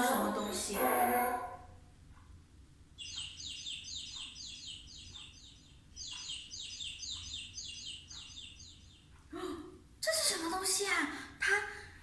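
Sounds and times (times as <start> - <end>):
chicks peeping: 2.9 - 9.3.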